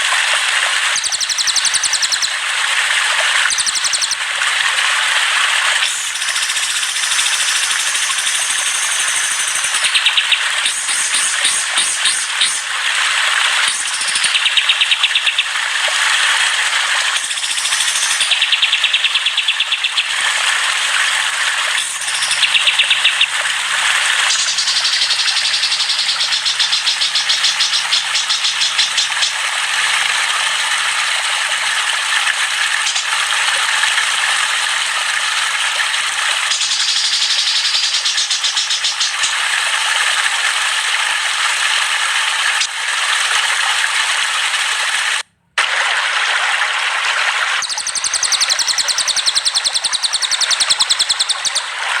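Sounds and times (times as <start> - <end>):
songbirds chattering and singing: 1.0 - 2.3, 3.5 - 4.2, 8.8 - 12.6, 13.7 - 15.5, 17.2 - 20.1, 21.8 - 23.4, 24.3 - 29.4, 36.5 - 39.3, 47.6 - 51.7
rattling bird trills: 21.8 - 23.4, 36.5 - 39.4, 47.6 - 51.7.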